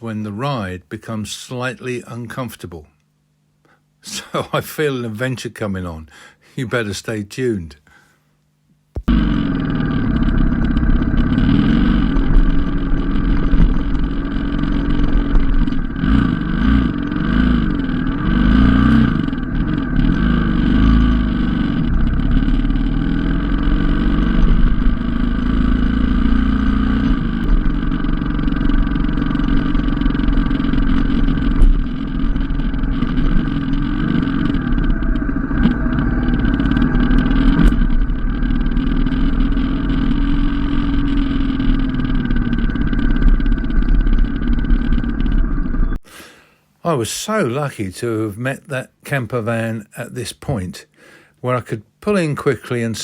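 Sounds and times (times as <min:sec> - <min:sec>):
motorcycle engine revving: 0:09.0 - 0:46.2.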